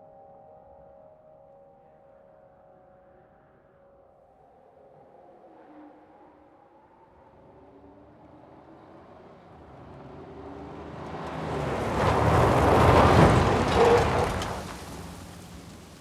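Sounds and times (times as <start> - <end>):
car speeding past: 5.2 - 16.0.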